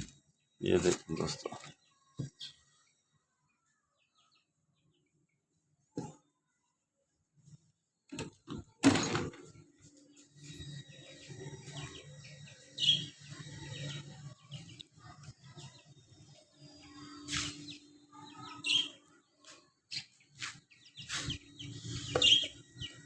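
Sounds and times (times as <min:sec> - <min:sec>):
baby chicks peeping: 0:03.9 - 0:05.1, 0:10.1 - 0:23.0.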